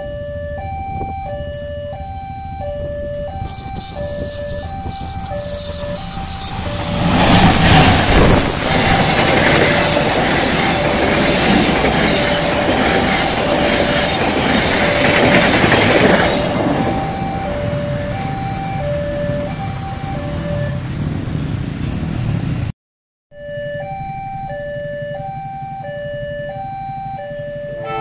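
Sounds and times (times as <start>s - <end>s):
two-tone crossing warning alarm: 0.0s - 21.0s, 23.3s - 28.0s
diesel train passing: 2.0s - 22.7s, 27.5s - 28.0s.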